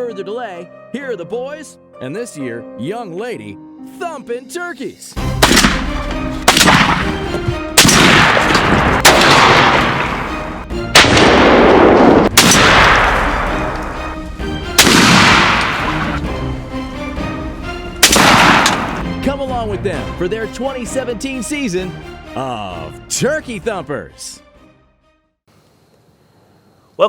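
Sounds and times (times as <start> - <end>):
background music: 0.0 - 25.4
shotgun blasts with echo: 5.2 - 14.0, 14.7 - 16.3, 18.0 - 19.0.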